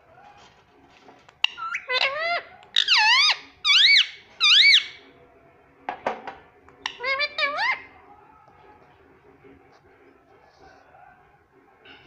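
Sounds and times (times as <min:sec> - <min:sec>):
parakeet shrill calls: 0:01.4 - 0:05.0, 0:06.8 - 0:07.9.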